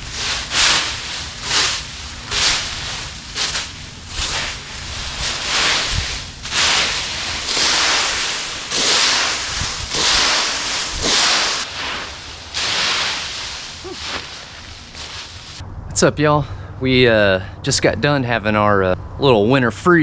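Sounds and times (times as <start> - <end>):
raking dry leaves: 0.0 - 15.6.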